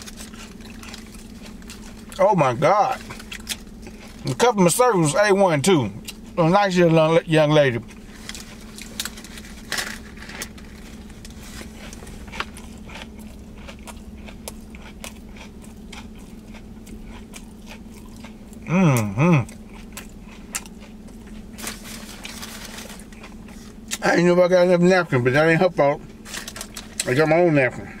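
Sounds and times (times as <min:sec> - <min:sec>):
crunchy chewing: 0:00.0 - 0:04.7, 0:07.6 - 0:24.2
faint low hum: 0:00.0 - 0:28.0
man humming: 0:18.6 - 0:19.5.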